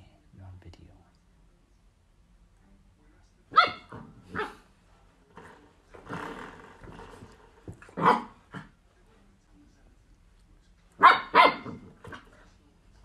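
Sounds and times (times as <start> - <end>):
puppy barking: 3.5 - 4.7, 7.9 - 8.7, 11.0 - 12.2
puppy growl-bark: 3.5 - 4.7, 7.8 - 8.8, 11.0 - 12.3.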